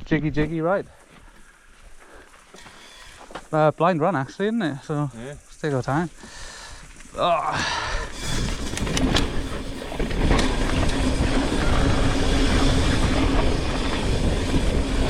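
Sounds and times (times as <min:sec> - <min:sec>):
bike tyres rolling over dirt: 0:00.0 - 0:15.0
bike rattling: 0:06.2 - 0:15.0
wind on microphone: 0:07.9 - 0:15.0.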